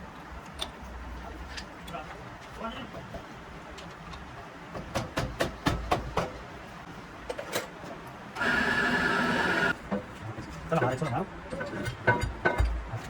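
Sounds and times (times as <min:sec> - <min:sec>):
small motor running: 0:08.4 - 0:09.8.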